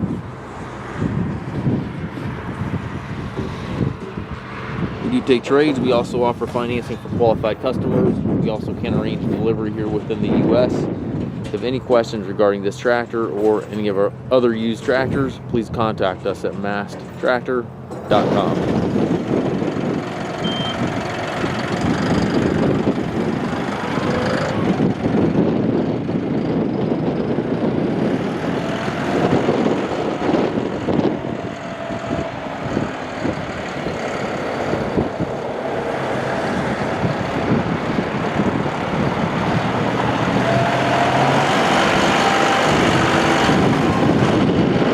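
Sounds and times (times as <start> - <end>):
tractor diesel engine running: 12.8 - 44.9.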